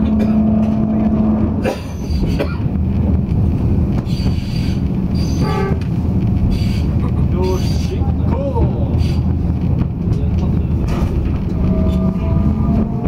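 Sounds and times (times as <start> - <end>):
train car rumble: 0.0 - 13.0
wheels clicking over rails: 0.0 - 13.0
high-pitched squeal: 4.1 - 5.8.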